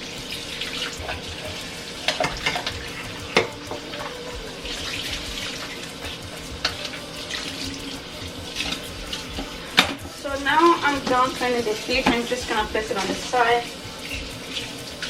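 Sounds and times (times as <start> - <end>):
fish washed by hand: 0.0 - 15.0
tap running into sink: 0.6 - 7.6, 8.2 - 10.2, 10.9 - 13.4.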